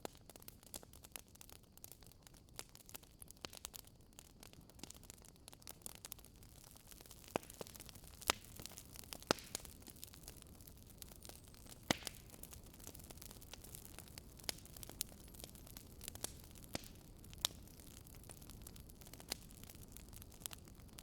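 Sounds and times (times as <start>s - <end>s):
campfire crackling and popping: 0.0s - 21.0s
fire hiss: 6.3s - 21.0s.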